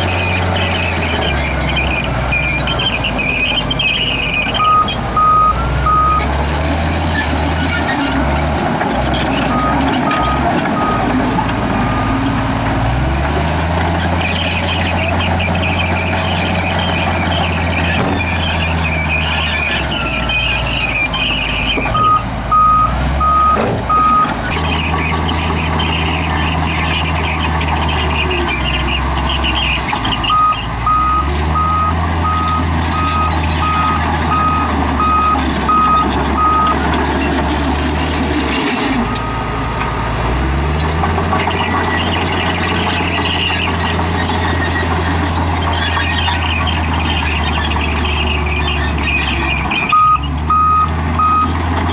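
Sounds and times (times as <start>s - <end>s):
bulldozer diesel engine: 0.0s - 51.9s
reversing alarm beeps: 4.6s - 6.2s, 21.9s - 24.3s, 30.3s - 36.8s, 49.9s - 51.6s.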